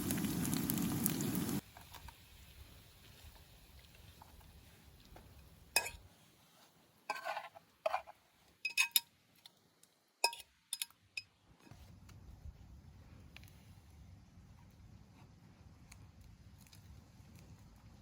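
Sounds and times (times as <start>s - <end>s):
camp cookware clinking: 5.7s - 6.1s, 7.1s - 9.2s, 10.2s - 11.4s.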